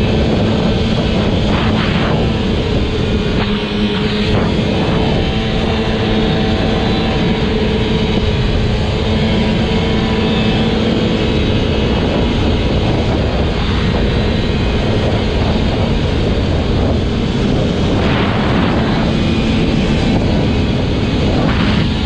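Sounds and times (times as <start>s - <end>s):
truck engine running while driving: 0.0s - 22.0s.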